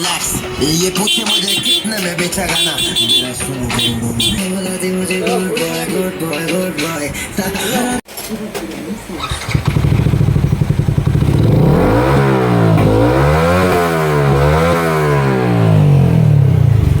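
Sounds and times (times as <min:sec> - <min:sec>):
motorcycle engine idling and revving: 0:09.1 - 0:17.0.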